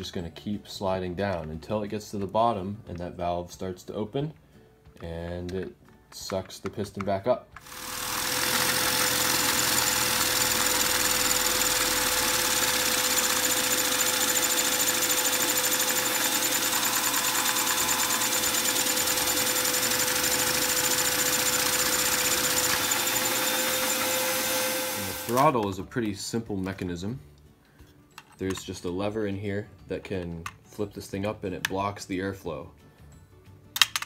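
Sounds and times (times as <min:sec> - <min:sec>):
vacuum cleaner whining: 0:07.6 - 0:25.5
small engine piston clatter: 0:08.0 - 0:23.9.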